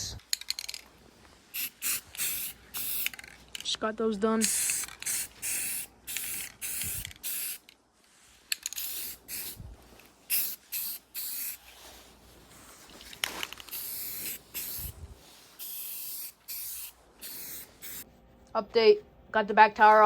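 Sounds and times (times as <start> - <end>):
short hissing spray bursts: 1.5 - 3.2, 4.4 - 7.6, 8.7 - 9.7, 10.3 - 12.1, 13.6 - 18.0.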